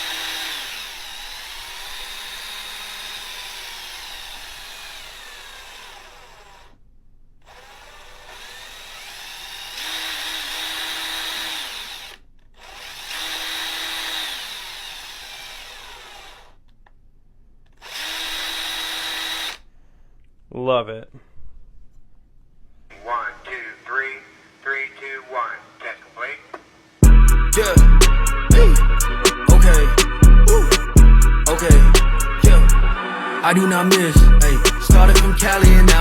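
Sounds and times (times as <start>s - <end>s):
small motor whirring: 0.0s - 6.8s, 7.4s - 16.7s, 17.8s - 19.7s.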